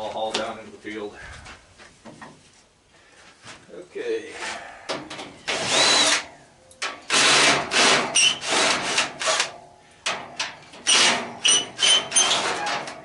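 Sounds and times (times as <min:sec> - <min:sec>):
metal rasping and scraping: 0:07.0 - 0:13.0
high metallic squeaks: 0:08.1 - 0:08.6, 0:10.8 - 0:13.0.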